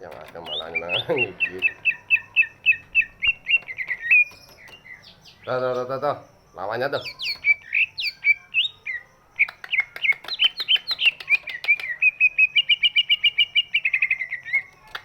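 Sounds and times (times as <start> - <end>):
bird singing chirps and trill: 0.0 - 15.0.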